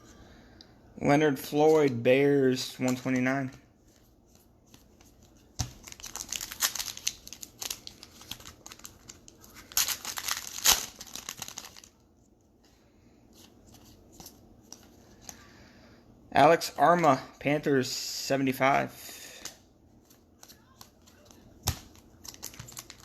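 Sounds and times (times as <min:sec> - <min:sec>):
plastic wrapper tearing and crinkling: 0:05.7 - 0:12.0, 0:20.7 - 0:23.0.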